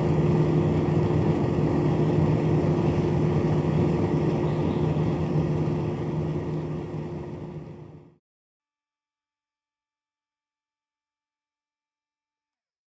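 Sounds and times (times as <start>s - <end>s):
small fan motor humming: 0.0s - 8.1s.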